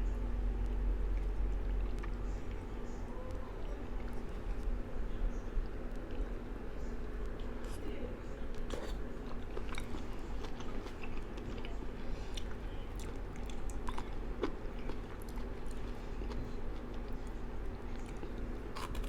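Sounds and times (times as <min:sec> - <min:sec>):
low background hum: 0:00.0 - 0:19.0
person chewing with wet smacks: 0:00.6 - 0:02.7, 0:08.5 - 0:19.0.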